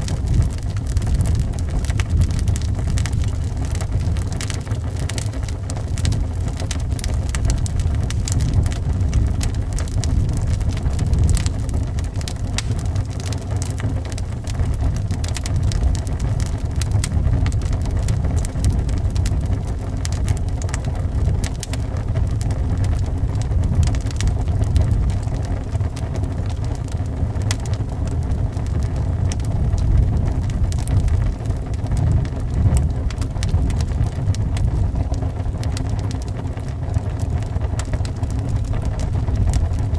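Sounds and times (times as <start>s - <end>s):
low rumble of wind: 0.0s - 39.9s
wood fire crackling and popping: 0.0s - 39.9s.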